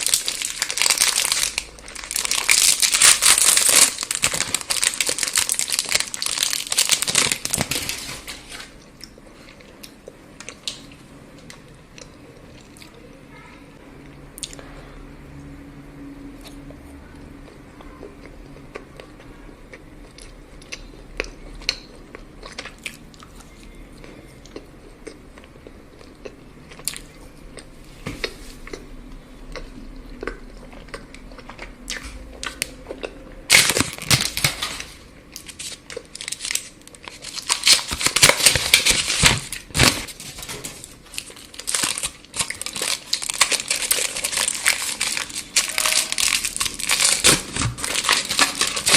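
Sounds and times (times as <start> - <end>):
wrapper crinkling and tearing: 0.0 - 8.7, 33.5 - 48.9.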